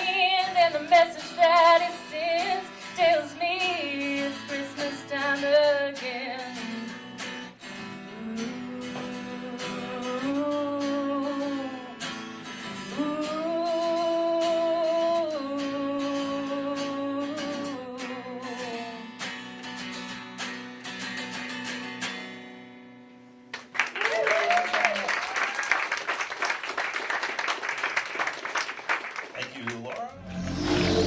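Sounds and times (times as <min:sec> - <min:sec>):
strummed acoustic guitar: 0:00.0 - 0:23.5
woman singing long notes: 0:08.1 - 0:11.9, 0:12.9 - 0:19.0.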